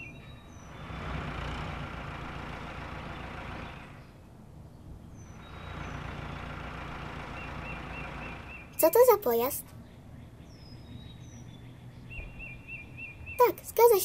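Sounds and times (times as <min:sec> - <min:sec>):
tractor engine running: 0:00.0 - 0:04.2, 0:05.2 - 0:09.6
cartoon vehicle engines: 0:00.0 - 0:04.3, 0:05.0 - 0:09.8, 0:13.2 - 0:14.0.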